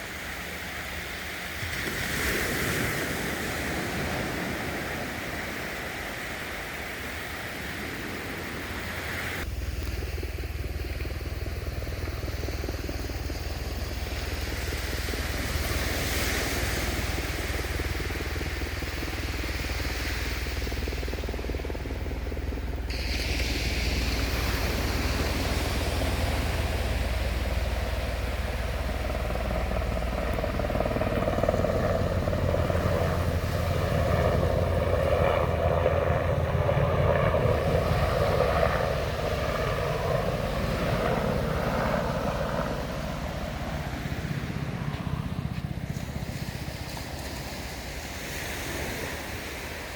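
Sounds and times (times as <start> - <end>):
surf washing on a beach: 0.0 - 9.5, 12.6 - 45.0, 45.8 - 49.9
wind on microphone: 0.0 - 49.9
engine passing nearby: 22.8 - 49.9.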